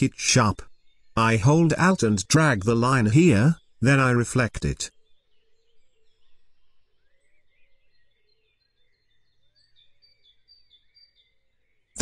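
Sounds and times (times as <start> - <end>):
faint bird chirping: 0.0 - 12.0.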